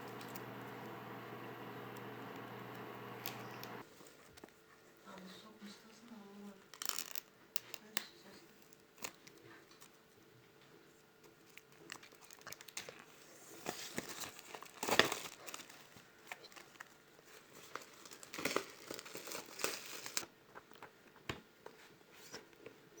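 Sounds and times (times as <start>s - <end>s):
crinkling and crackling: 0.0s - 4.6s, 11.2s - 22.0s.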